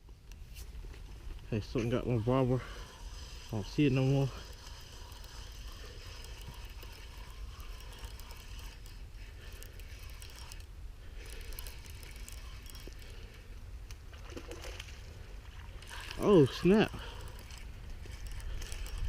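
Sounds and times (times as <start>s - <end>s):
fishing reel gears clicking: 1.4s - 13.5s, 15.8s - 19.0s.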